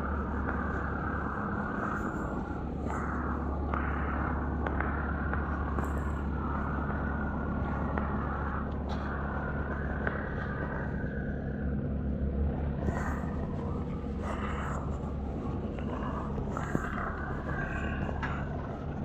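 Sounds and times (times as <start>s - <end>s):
engine running low rumble: 0.0s - 19.0s.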